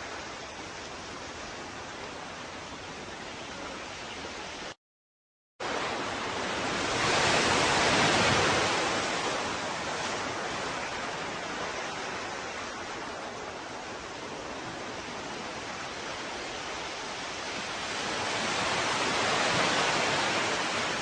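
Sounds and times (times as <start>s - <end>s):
ocean waves washing: 5.6s - 21.0s.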